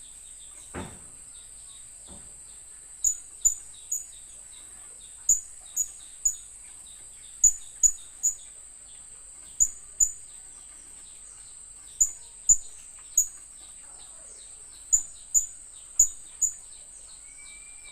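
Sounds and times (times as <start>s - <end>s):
faint soft chirps: 1.7s - 17.9s
parrot high-pitched calls: 17.2s - 17.9s.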